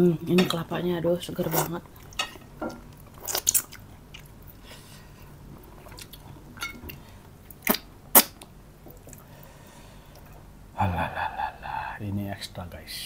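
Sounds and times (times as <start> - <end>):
man chewing food: 1.5 - 10.6
lip smacks: 7.5 - 9.3.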